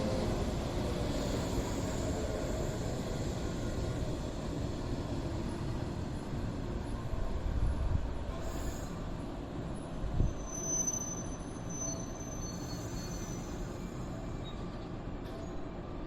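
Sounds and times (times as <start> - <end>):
train rumbling along track: 0.0 - 16.0
high wheel squeal: 10.2 - 14.6.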